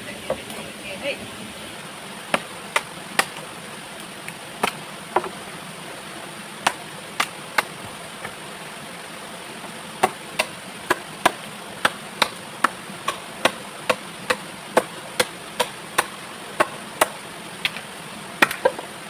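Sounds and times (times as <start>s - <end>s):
blade chopping wood: 2.3s - 3.4s, 4.6s - 5.4s, 6.6s - 8.4s, 10.0s - 17.8s, 18.4s - 18.8s.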